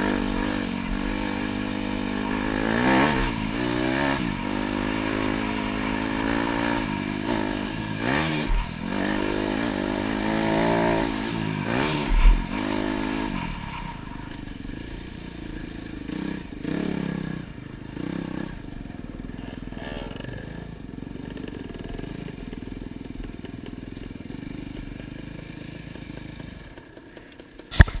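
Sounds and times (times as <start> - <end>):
dirt bike engine revving: 0.0 - 22.1
sharp thump: 27.7 - 28.0.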